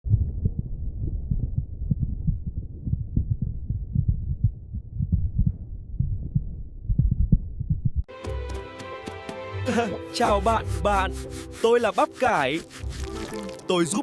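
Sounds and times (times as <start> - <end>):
deep throbbing hum: 0.0 - 8.0
heartbeat thumps: 0.0 - 8.1.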